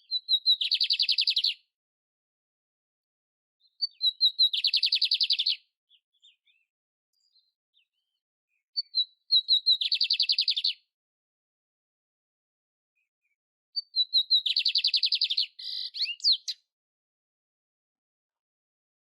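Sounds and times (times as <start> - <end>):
canary singing: 0.0 - 1.6, 3.6 - 6.7, 8.8 - 10.8, 13.8 - 16.7.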